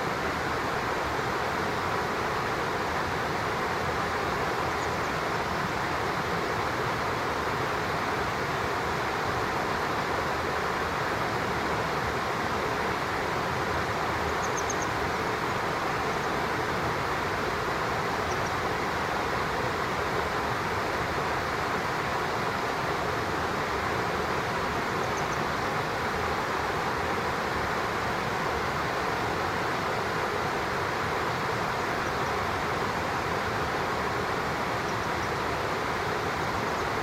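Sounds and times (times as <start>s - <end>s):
stream water rushing: 0.0s - 37.0s
bird chirp: 14.4s - 15.0s.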